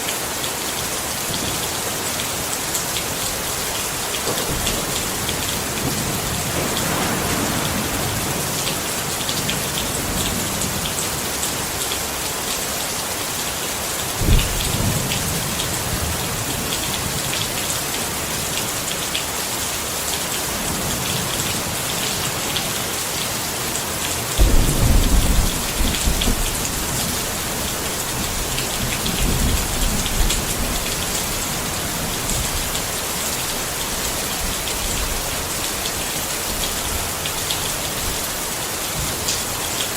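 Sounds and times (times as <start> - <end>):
rain pattering on a tent: 0.0 - 39.9
thunder rumbling: 4.2 - 10.9, 14.2 - 17.5, 24.4 - 32.9.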